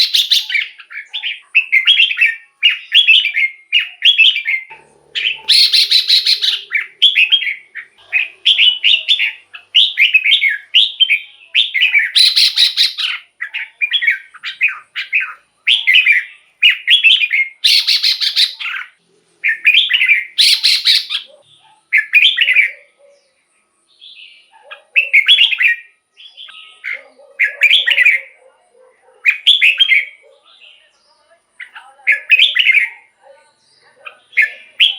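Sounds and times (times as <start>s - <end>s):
bird singing whistled phrases: 0.0s - 22.8s, 25.0s - 28.4s, 29.3s - 30.2s, 31.6s - 33.1s, 34.2s - 34.9s
harsh rattling bird calls: 0.0s - 30.5s, 31.6s - 34.9s.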